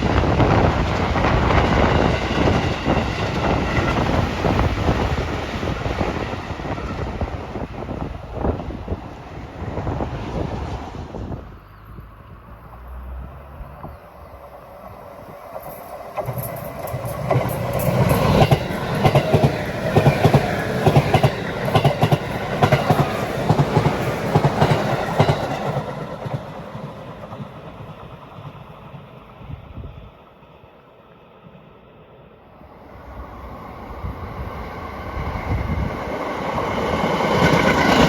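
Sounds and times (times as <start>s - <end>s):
train wheels clacking on rails: 0.0s - 9.2s, 14.8s - 29.5s, 34.7s - 38.0s.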